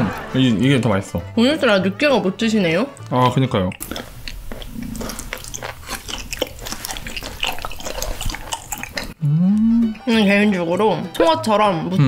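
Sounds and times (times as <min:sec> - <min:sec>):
wet chewing: 0:02.6 - 0:10.2.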